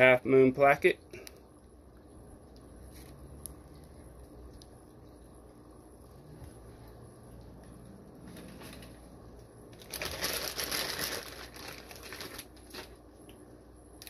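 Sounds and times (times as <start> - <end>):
plastic bag crinkling: 9.7 - 13.1.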